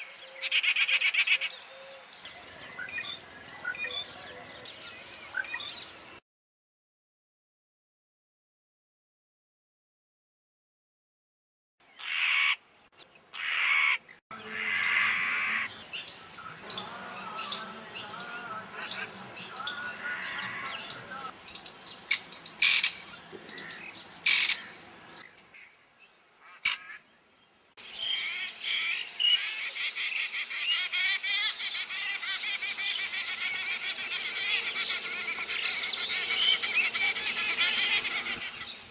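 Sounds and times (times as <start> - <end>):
bird hoarse calls: 13.3 - 21.4, 22.0 - 24.9, 28.0 - 38.9.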